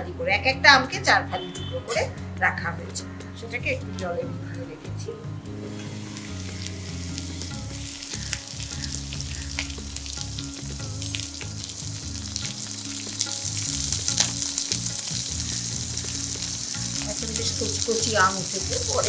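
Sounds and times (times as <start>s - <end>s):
oil crackling and spitting: 5.5s - 19.0s
food frying in hot oil: 5.6s - 19.0s.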